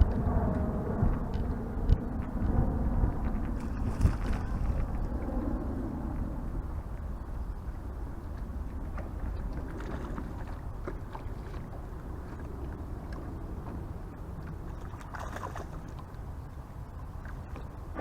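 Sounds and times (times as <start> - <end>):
low rumble of wind and water: 0.0 - 18.0
swishing rush of water: 3.6 - 5.1, 8.3 - 18.0.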